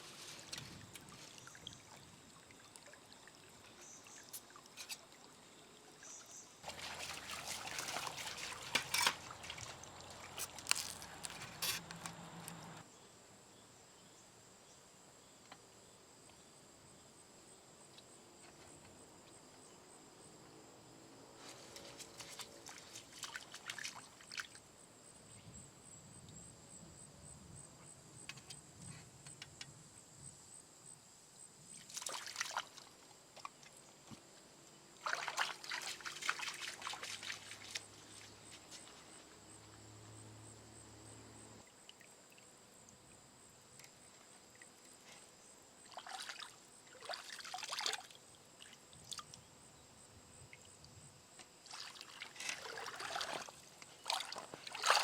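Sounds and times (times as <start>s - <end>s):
water trickling and splashing: 0.0s - 12.8s, 21.8s - 24.6s, 31.8s - 33.8s, 35.0s - 39.4s, 45.8s - 49.4s, 51.6s - 55.0s.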